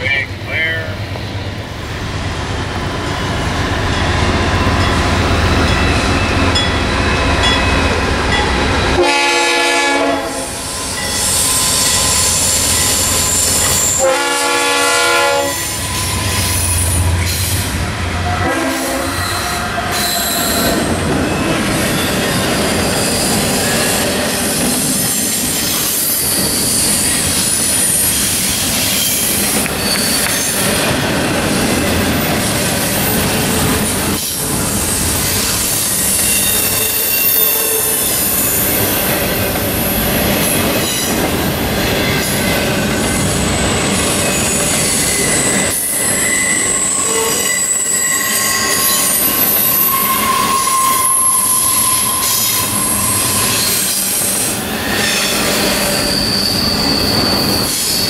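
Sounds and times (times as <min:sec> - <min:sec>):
freight train rumbling: 0:00.0 - 0:58.0
train air horn blasts: 0:09.0 - 0:10.6, 0:13.9 - 0:15.8, 0:18.4 - 0:19.5.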